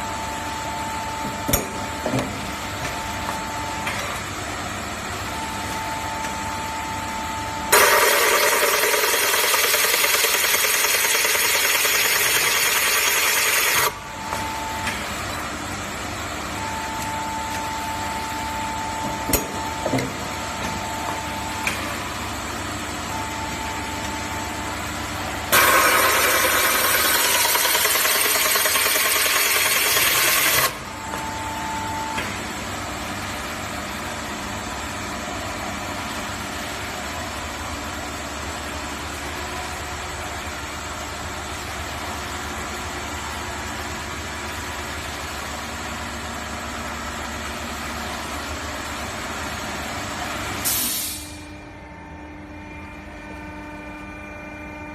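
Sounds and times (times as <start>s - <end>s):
machine humming: 3.0s - 32.4s
short machine whines: 5.3s - 15.7s, 16.4s - 32.4s
pipe drilling cutting noise: 7.7s - 14.0s, 25.5s - 30.8s.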